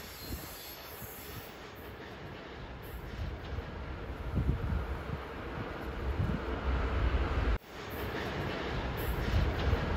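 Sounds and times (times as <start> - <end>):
distant trains rumbling: 0.0 - 9.9
wind buffeting microphone: 3.0 - 7.6.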